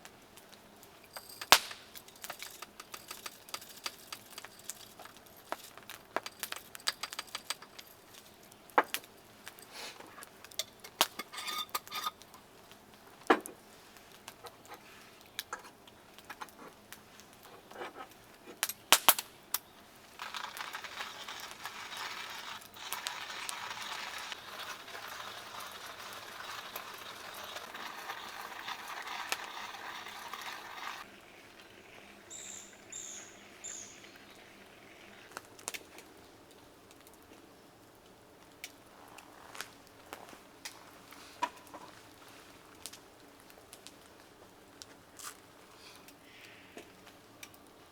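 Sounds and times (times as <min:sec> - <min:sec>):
fire crackling: 0:00.0 - 0:47.9
utensils clicking and clinking: 0:01.0 - 0:12.3, 0:20.1 - 0:31.1
food sizzling: 0:19.8 - 0:36.0.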